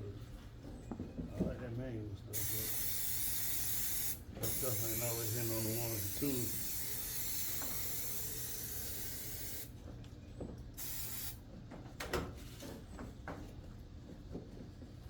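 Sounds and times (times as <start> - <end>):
spray hissing: 2.4 - 9.7, 10.8 - 11.4.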